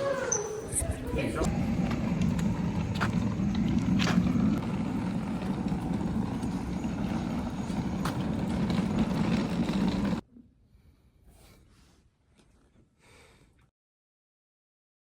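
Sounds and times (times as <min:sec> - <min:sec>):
vehicle rumble: 0:00.0 - 0:10.2.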